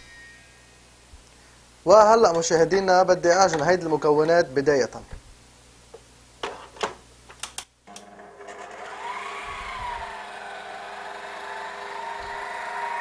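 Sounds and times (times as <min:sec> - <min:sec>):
stand mixer motor running: 0:07.9 - 0:13.0.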